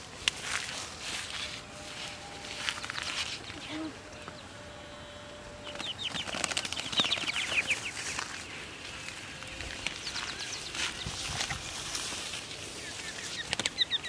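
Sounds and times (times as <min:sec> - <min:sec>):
high falling bird chirps: 0:05.6 - 0:11.8, 0:12.4 - 0:14.0
birds flapping wings: 0:05.6 - 0:14.0.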